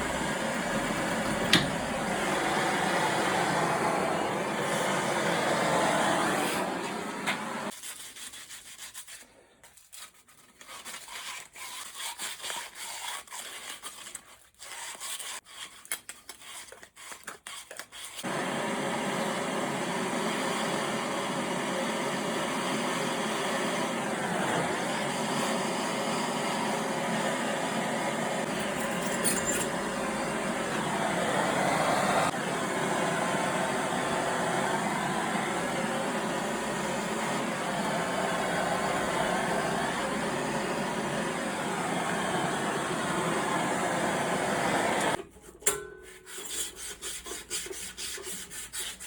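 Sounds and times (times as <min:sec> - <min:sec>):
soldering torch hissing: 0:00.0 - 0:07.7, 0:18.2 - 0:45.2.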